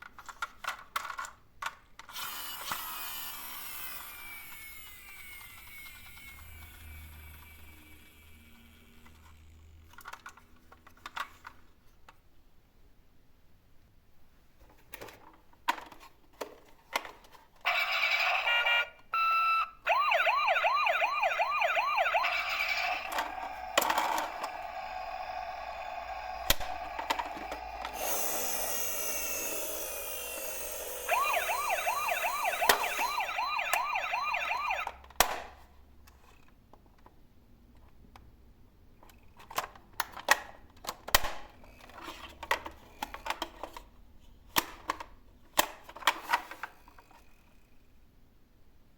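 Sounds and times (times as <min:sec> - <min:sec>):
toy warbling siren: 0:17.7 - 0:35.0
electronic steady tone: 0:30.9 - 0:34.8.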